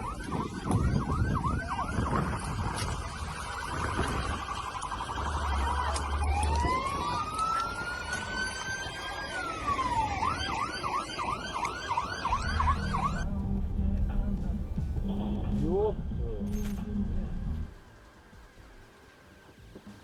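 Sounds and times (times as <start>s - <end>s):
emergency vehicle siren: 0.0s - 13.4s.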